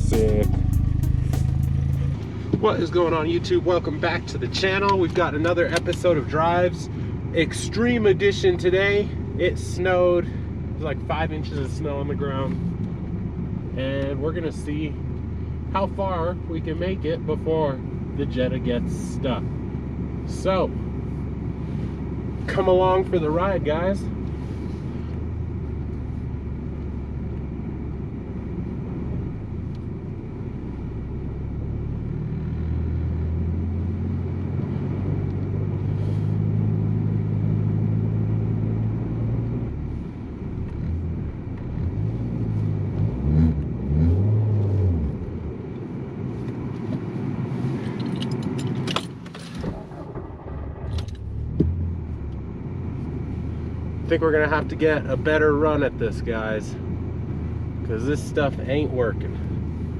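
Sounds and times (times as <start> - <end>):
car engine revving: 0.0 - 6.5, 31.5 - 59.9.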